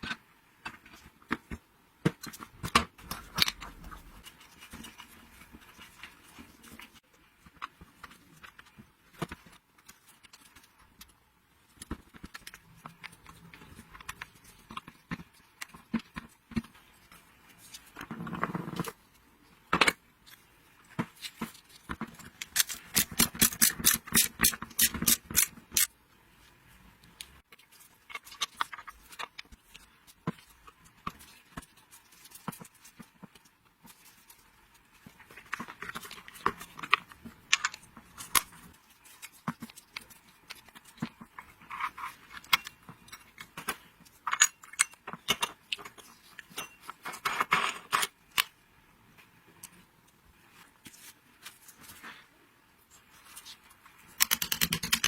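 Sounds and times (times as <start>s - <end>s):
metal parts clicking: 54.2s - 55.0s.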